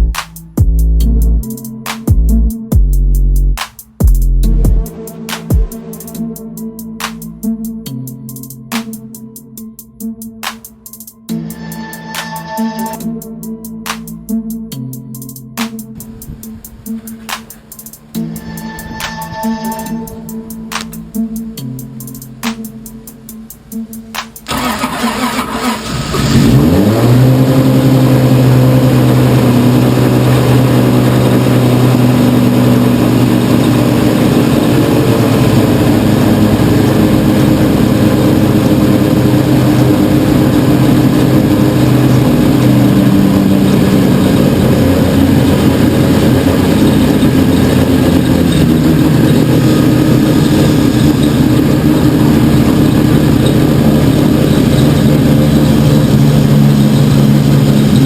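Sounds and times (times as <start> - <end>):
car engine cranking and idling: 20.1 - 58.0.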